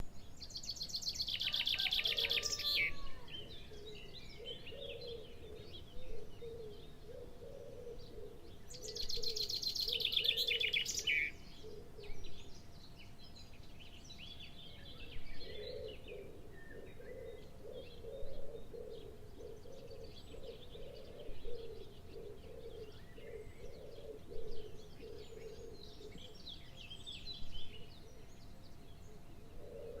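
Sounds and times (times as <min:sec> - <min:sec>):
low pulsing bird call: 0:00.0 - 0:12.6, 0:14.8 - 0:30.0.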